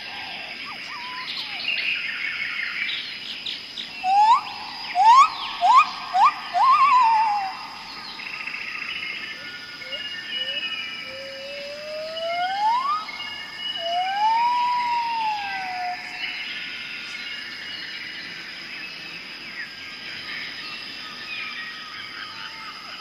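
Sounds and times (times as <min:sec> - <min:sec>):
steady high-pitched tones: 0:04.0 - 0:17.2
siren-like tone sliding up: 0:05.0 - 0:07.5, 0:11.7 - 0:13.1.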